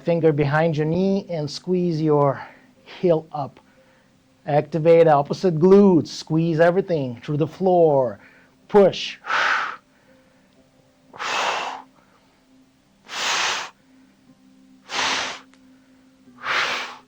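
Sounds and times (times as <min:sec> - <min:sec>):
person breathing out hard: 0:08.2 - 0:08.6, 0:09.2 - 0:10.4, 0:11.2 - 0:12.2, 0:13.1 - 0:14.1, 0:14.9 - 0:17.0.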